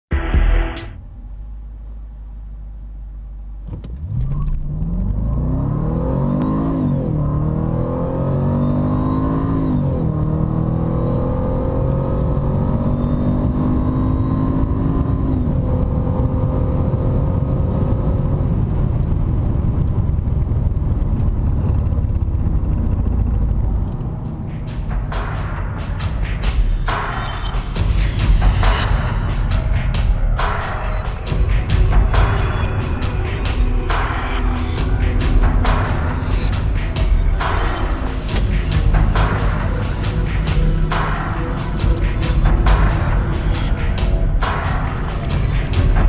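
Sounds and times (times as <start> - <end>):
car engine accelerating through gears: 3.6 - 25.4.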